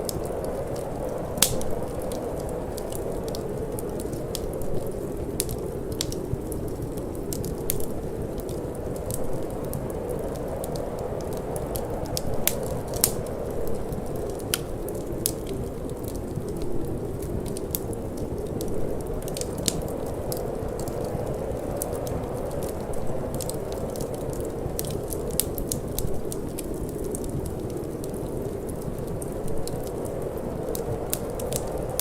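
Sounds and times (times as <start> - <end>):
low rushing wind: 0.0 - 32.0
wood fire crackling and popping: 0.0 - 32.0.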